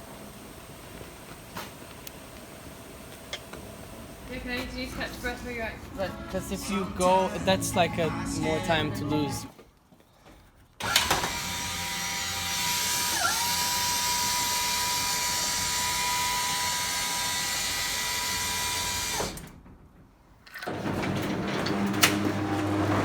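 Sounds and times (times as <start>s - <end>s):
small electric motor whining: 10.8s - 19.3s.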